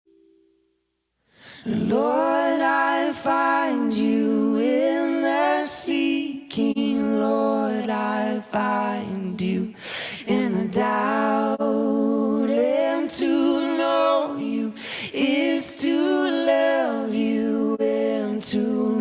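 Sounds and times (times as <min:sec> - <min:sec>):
singer breathing: 0:01.2 - 0:01.7, 0:09.7 - 0:10.3, 0:14.8 - 0:15.2
solo voice singing: 0:01.6 - 0:19.0.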